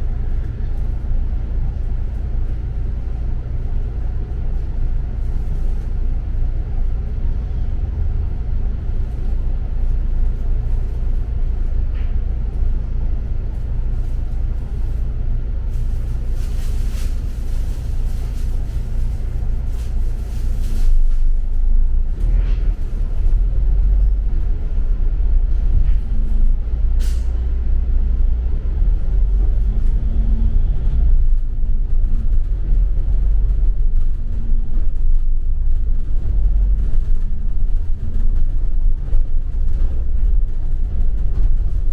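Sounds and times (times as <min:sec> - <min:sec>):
bus engine low rumble: 0:00.0 - 0:41.9.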